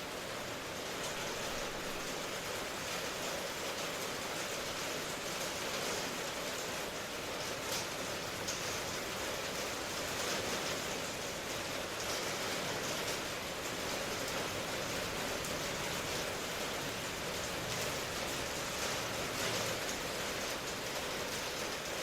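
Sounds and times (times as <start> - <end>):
raindrops pattering: 0.0 - 22.0
steady rain hiss: 0.0 - 22.0.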